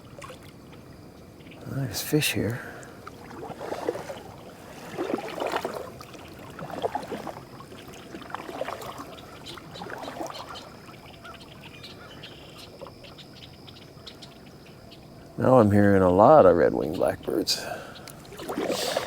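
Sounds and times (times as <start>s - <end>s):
paddle splashing in water: 0.0s - 0.9s, 2.1s - 13.2s, 17.6s - 19.0s.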